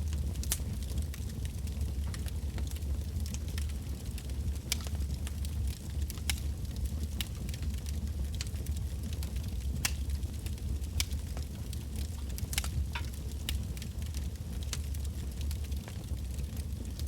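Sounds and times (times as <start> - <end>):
burning logs crackling and popping: 0.0 - 17.0
low rumble of flames: 0.0 - 17.0.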